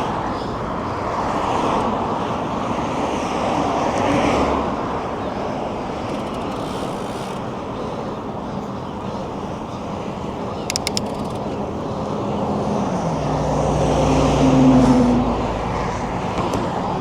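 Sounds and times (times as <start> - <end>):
road traffic rushing: 0.0 - 17.0.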